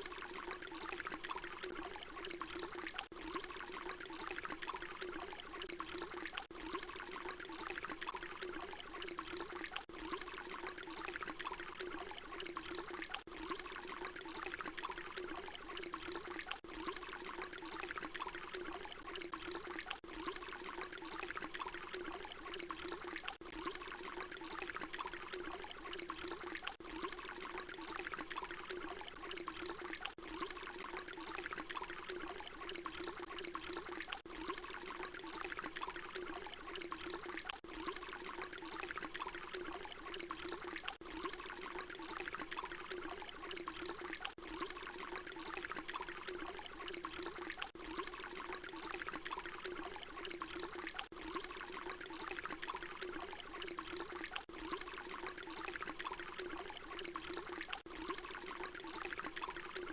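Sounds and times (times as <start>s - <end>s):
water pouring: 0.0s - 59.9s.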